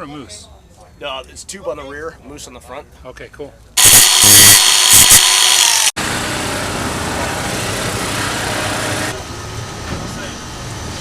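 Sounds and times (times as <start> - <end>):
loud power tool running: 3.8 - 9.2.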